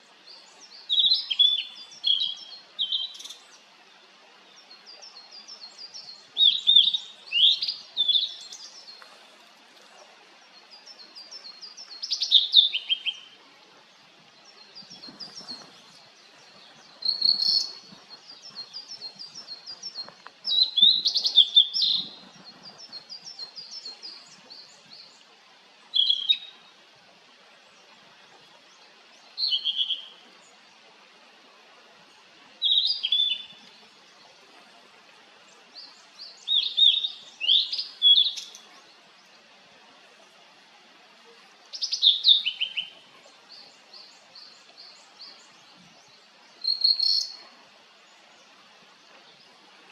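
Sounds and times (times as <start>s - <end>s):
bird whistling song: 0.9s - 3.4s, 17.0s - 22.2s, 25.9s - 26.5s, 29.4s - 30.1s, 32.6s - 33.6s, 36.3s - 38.6s, 41.7s - 43.0s, 46.6s - 47.4s.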